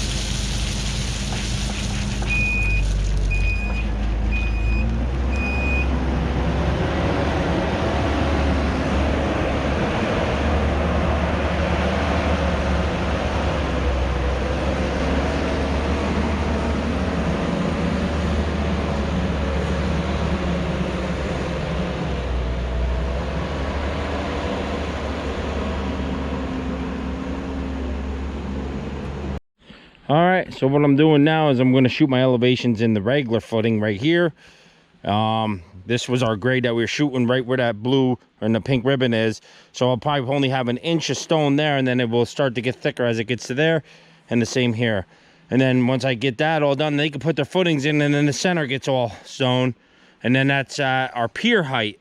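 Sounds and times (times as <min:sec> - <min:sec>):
diesel engine under load: 0:00.0 - 0:29.4, 0:34.3 - 0:51.6
backup alarm beeping: 0:02.2 - 0:05.9.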